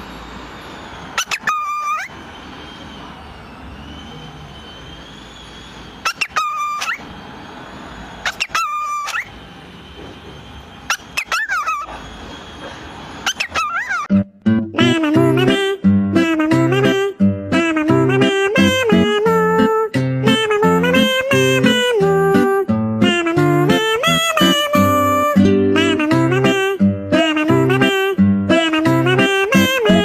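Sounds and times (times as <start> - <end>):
cockatiel chirping: 1.2 - 2.1, 6.0 - 7.0, 8.2 - 9.3, 10.9 - 12.0, 13.2 - 14.1.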